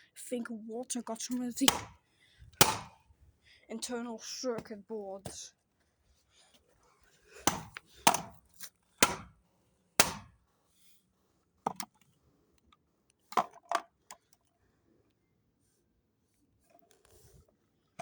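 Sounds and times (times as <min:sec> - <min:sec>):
sharp cracks: 0:02.6 - 0:02.9, 0:09.0 - 0:09.3, 0:10.0 - 0:10.3.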